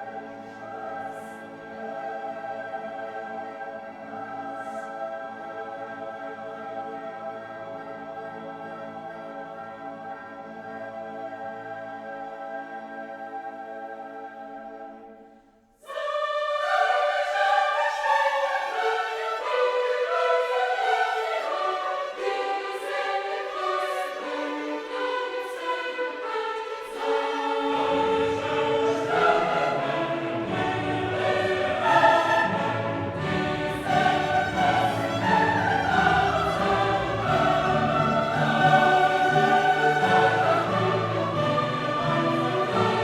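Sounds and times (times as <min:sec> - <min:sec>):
choir singing: 0:00.0 - 0:43.0
orchestra playing: 0:23.6 - 0:43.0.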